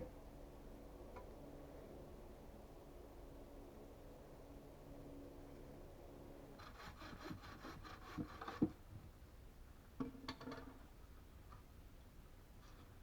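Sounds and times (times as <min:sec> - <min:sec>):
hand saw cutting wood: 0:06.6 - 0:08.8.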